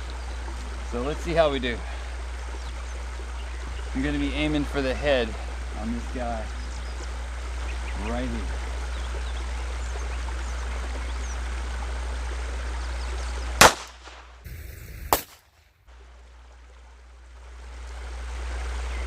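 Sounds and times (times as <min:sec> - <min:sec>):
pistol shot: 0:13.6 - 0:15.5.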